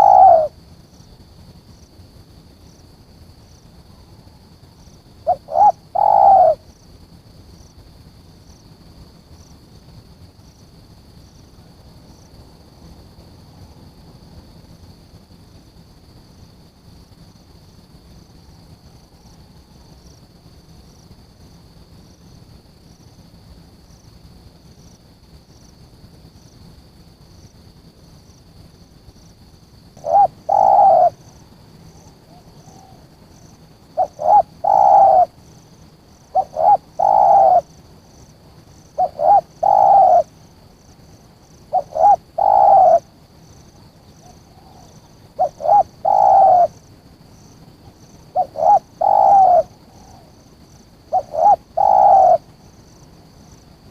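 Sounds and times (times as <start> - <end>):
dove cooing: 0.0 - 0.6, 5.2 - 6.7, 30.0 - 31.3, 32.1 - 33.1, 33.9 - 35.4, 36.3 - 37.7, 38.9 - 40.3, 41.7 - 43.1, 44.2 - 46.8, 48.3 - 50.4, 51.1 - 52.5
faint high hum: 0.0 - 53.9.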